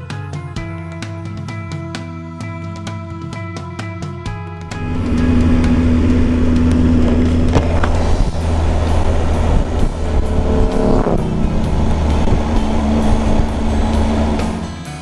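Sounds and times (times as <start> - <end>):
heavy wind rush: 4.7 - 15.0
motorcycle engine pulling: 4.7 - 15.0.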